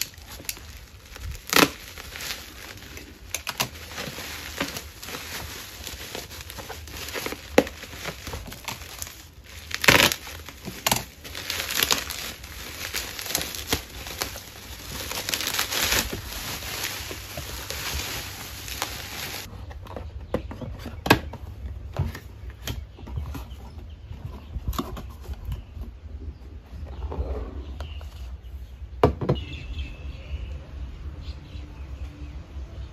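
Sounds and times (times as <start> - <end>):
bubble wrap crackling: 0.0 - 19.5.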